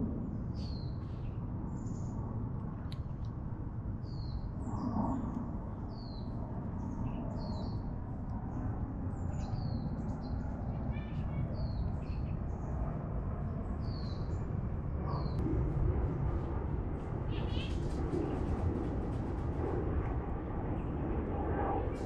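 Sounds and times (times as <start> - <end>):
small birds chirping: 4.0 - 15.4, 17.3 - 18.3.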